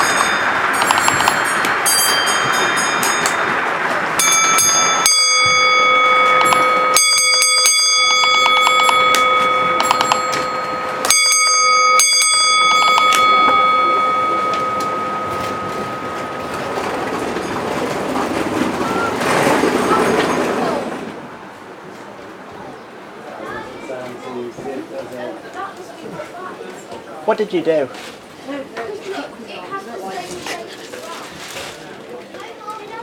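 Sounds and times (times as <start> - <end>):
bell ringing: 0.0 - 20.7.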